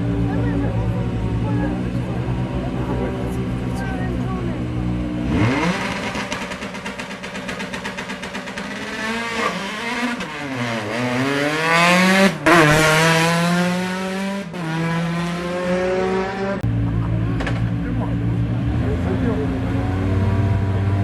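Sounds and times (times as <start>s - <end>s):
car accelerating with upshifts: 5.0s - 21.0s
rally car engine at high revs: 5.0s - 21.0s
engine crackle: 5.3s - 10.6s.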